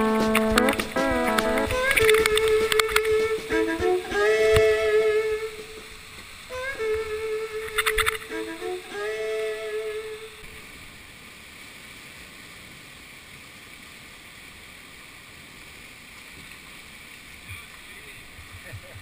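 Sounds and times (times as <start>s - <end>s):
background music: 0.0s - 5.8s, 6.5s - 10.4s
river water rushing: 0.0s - 19.0s.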